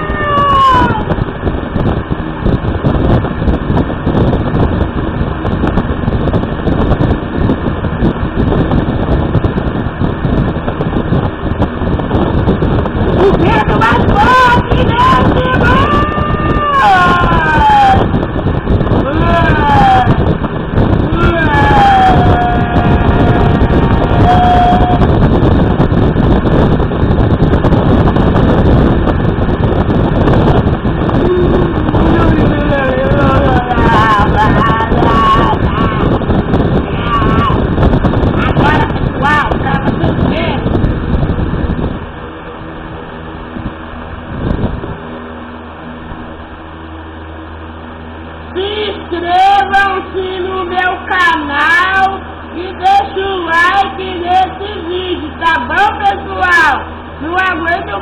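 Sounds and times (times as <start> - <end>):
fan wind buffeting microphone: 0.0 - 58.0.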